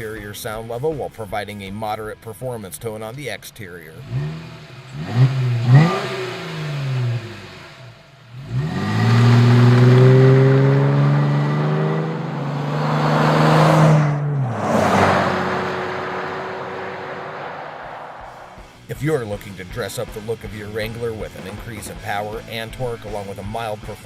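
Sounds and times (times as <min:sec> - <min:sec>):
car engine revving: 0:03.9 - 0:23.4
short rush of noise: 0:13.6 - 0:18.7.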